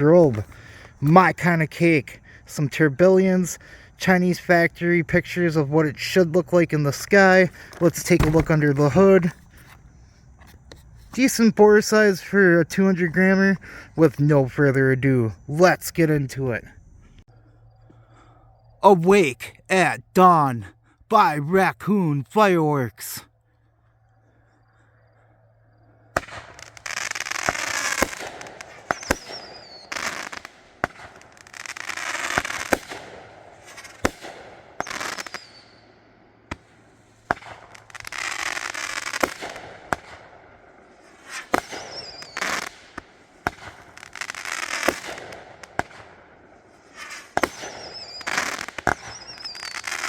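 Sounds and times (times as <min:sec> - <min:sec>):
firework launch thumps: 0:08.2 - 0:08.6
falling firework whistles: 0:26.2 - 0:40.2, 0:40.9 - 0:46.0, 0:46.6 - 0:50.0.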